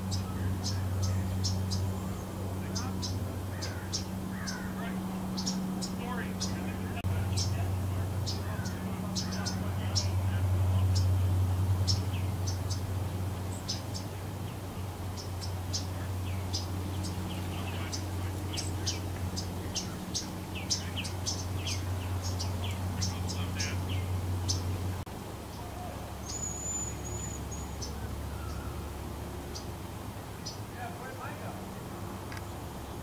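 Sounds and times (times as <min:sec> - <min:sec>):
steady low hum: 0:00.0 - 0:26.3
songbirds chirping: 0:00.0 - 0:33.0
whistled bird note: 0:26.2 - 0:28.8.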